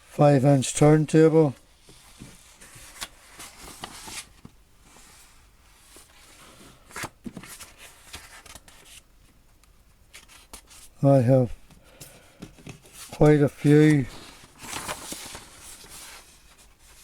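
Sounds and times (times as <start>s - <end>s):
paper rustling: 1.8s - 9.1s, 10.1s - 11.0s, 11.7s - 17.0s.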